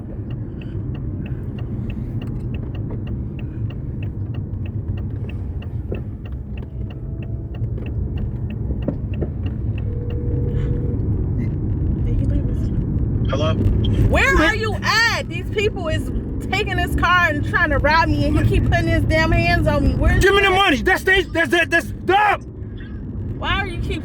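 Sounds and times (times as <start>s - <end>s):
light regular ticking: 0.0s - 11.8s
car engine rumbling: 0.0s - 24.0s.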